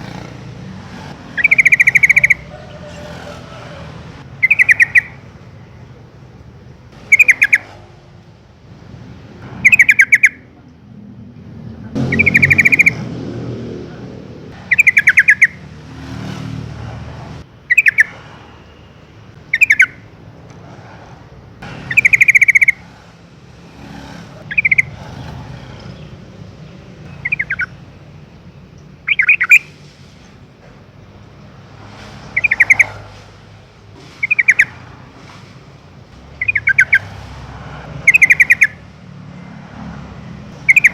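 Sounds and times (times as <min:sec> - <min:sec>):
bird chattering call: 0:00.0 - 0:03.7, 0:04.3 - 0:05.3, 0:07.0 - 0:07.9, 0:09.6 - 0:10.5, 0:12.0 - 0:13.0, 0:14.6 - 0:15.6, 0:17.6 - 0:18.2, 0:19.4 - 0:20.0, 0:21.7 - 0:23.0, 0:24.4 - 0:25.3, 0:27.1 - 0:27.9, 0:29.0 - 0:29.8, 0:32.3 - 0:33.2, 0:34.2 - 0:34.8, 0:36.3 - 0:37.1, 0:38.0 - 0:38.8, 0:40.6 - 0:40.9.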